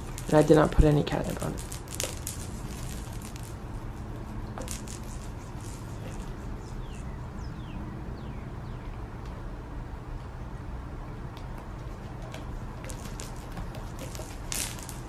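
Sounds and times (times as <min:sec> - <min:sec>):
toy rattles and soft knocks: 0:12.0 - 0:15.0.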